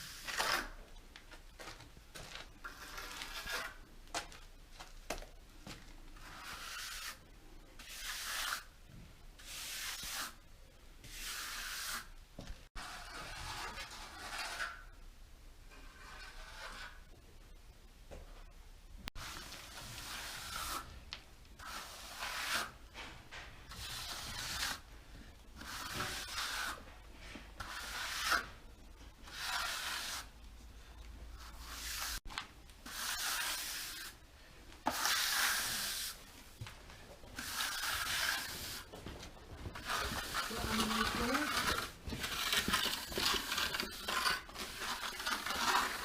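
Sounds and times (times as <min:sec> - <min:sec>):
trowel scraping render on wall: 0:00.0 - 0:00.8, 0:02.6 - 0:03.8, 0:06.2 - 0:07.2, 0:07.8 - 0:08.7, 0:11.0 - 0:12.1, 0:12.8 - 0:14.9, 0:15.7 - 0:17.1, 0:19.2 - 0:20.9, 0:21.6 - 0:22.8, 0:23.7 - 0:24.8, 0:25.6 - 0:26.9, 0:27.6 - 0:28.6, 0:29.2 - 0:30.3, 0:32.8 - 0:34.2, 0:34.9 - 0:36.2, 0:37.4 - 0:38.9, 0:39.7 - 0:46.0.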